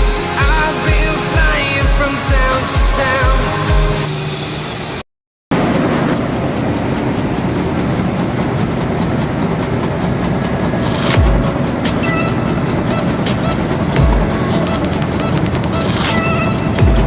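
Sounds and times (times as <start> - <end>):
music: 0.0 - 4.1, 11.2 - 17.0
heavy machinery rumbling: 0.0 - 5.0, 5.6 - 17.0
machinery clatter: 5.6 - 17.0.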